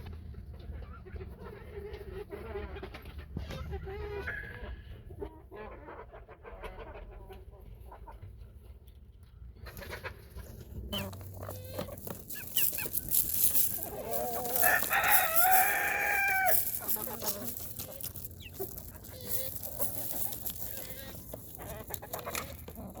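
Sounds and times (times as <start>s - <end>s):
chickens clucking: 0.2s - 23.0s
rooster crowing: 14.4s - 17.0s.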